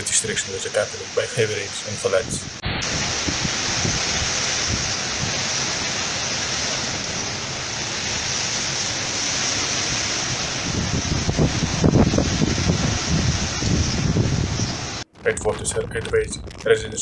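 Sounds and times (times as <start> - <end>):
storm wind and water rushing: 0.0 - 17.0
wind gusts buffeting microphone: 0.0 - 17.0.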